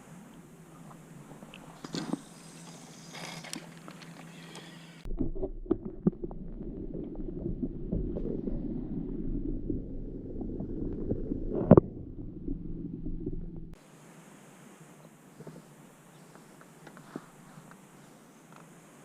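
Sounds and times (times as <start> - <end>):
muffled underwater sloshing: 5.0 - 13.8
knocks underwater: 5.1 - 13.8.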